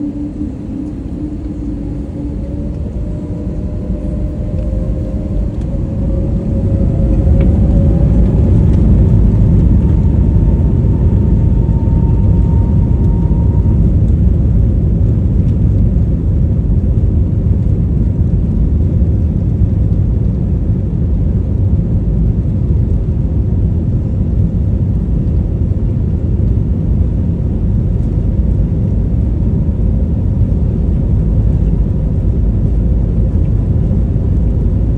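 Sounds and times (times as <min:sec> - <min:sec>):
jet engines powering up: 0:00.0 - 0:16.1.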